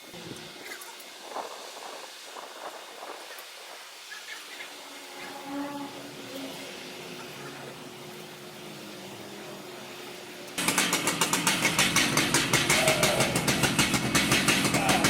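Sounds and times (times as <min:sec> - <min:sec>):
chainsaw engine pulsing: 0:04.6 - 0:15.0.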